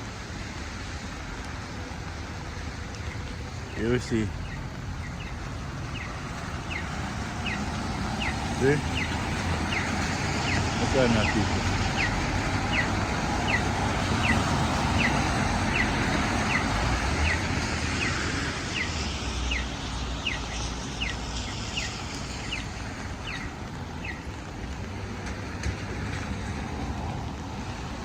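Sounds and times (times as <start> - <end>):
road traffic passing: 0.0 - 28.0.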